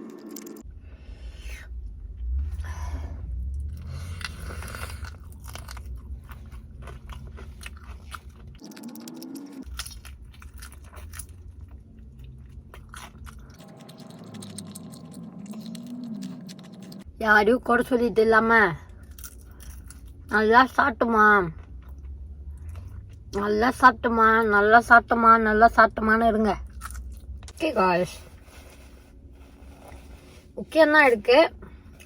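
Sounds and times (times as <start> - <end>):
crunching fried chicken: 4.1 - 17.0.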